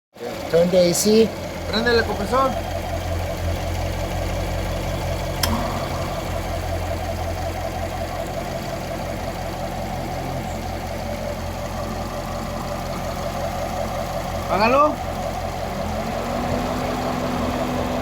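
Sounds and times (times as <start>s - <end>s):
car engine idling: 0.2s - 18.0s
sharp click: 5.4s - 5.7s.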